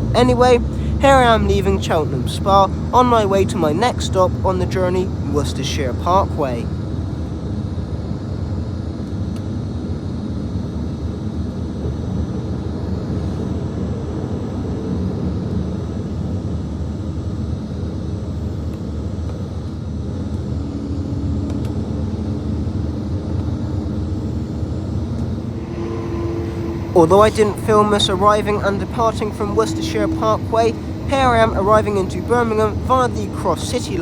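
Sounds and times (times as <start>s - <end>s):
diesel train running: 0.0s - 7.8s, 22.9s - 34.0s.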